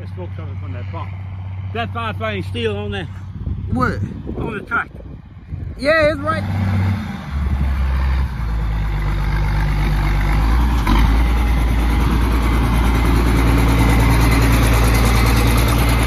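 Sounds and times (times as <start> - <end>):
tractor engine humming: 6.4 - 16.0.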